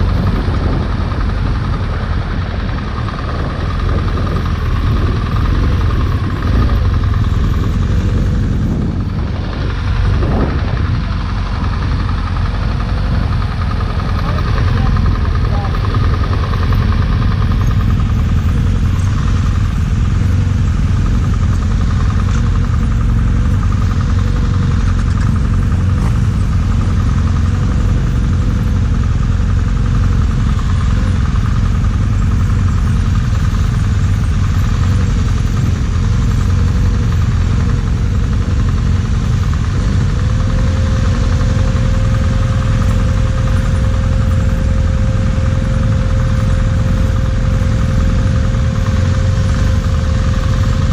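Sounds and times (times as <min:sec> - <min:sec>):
motorcycle engine rumble: 0:00.0 - 0:50.9
thin steady whine: 0:00.0 - 0:50.9.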